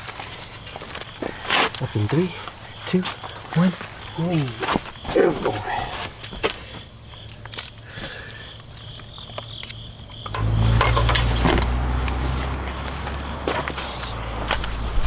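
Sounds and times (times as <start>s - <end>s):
car engine starting and idling: 10.1s - 15.0s.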